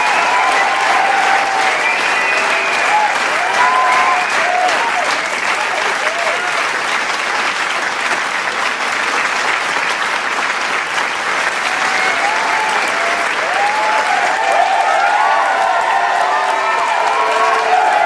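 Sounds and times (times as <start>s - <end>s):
crowd cheering and whooping: 0.0s - 6.6s, 11.5s - 18.0s
crowd applauding: 0.0s - 18.0s.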